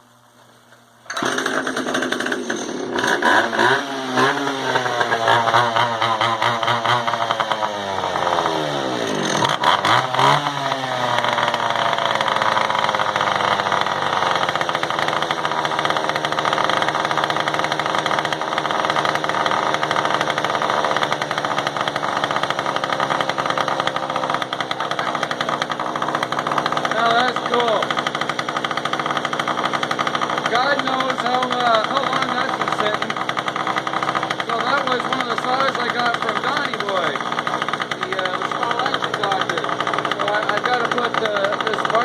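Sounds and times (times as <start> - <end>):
chainsaw engine idling: 1.1 - 42.0.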